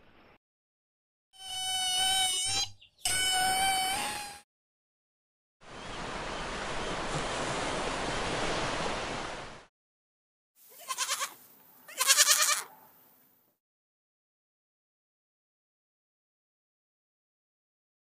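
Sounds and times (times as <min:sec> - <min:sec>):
surf washing over rocks: 0:05.9 - 0:09.7
ibex bleating: 0:10.6 - 0:12.7.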